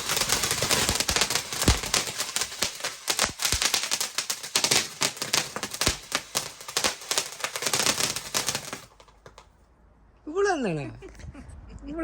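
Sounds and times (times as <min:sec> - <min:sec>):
firework crackling and popping: 0:00.0 - 0:09.6.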